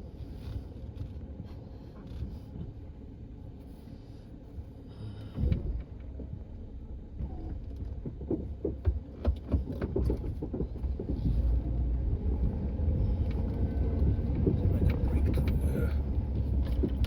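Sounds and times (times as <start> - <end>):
vehicle engine rumbling: 0.0 - 17.0
knocks and clunks: 7.2 - 12.5.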